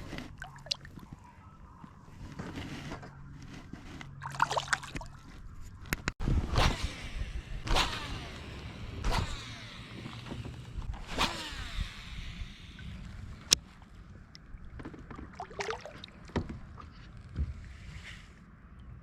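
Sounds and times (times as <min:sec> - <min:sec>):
paddle strokes splashing: 0:00.0 - 0:05.8, 0:12.8 - 0:18.5.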